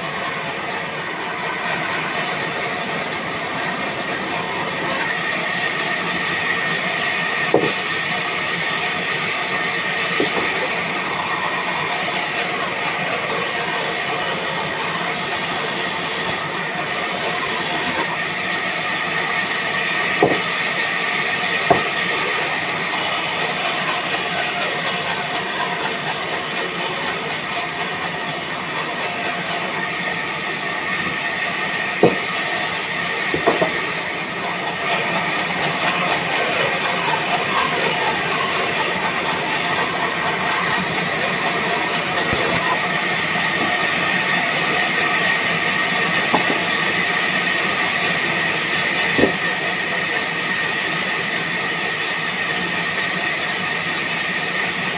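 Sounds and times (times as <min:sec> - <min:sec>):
sawmill machinery whining: 0:00.0 - 0:54.9
sharp knocks: 0:07.5 - 0:07.8, 0:20.2 - 0:20.5, 0:21.7 - 0:22.0, 0:32.0 - 0:32.3, 0:33.4 - 0:33.8, 0:46.3 - 0:46.7, 0:49.2 - 0:49.4.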